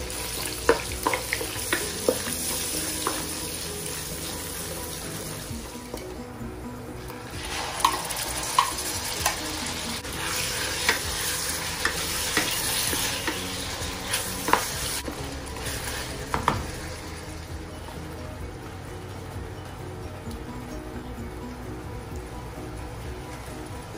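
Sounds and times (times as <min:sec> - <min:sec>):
chicken sizzling in a wok: 0:00.0 - 0:06.0, 0:07.3 - 0:17.5.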